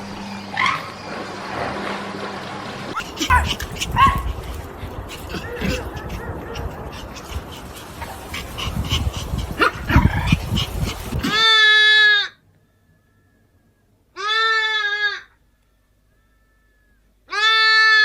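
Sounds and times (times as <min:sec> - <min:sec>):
dog whimpering and yipping: 0:03.0 - 0:11.6
steady bleat: 0:14.2 - 0:15.4, 0:17.3 - 0:18.0.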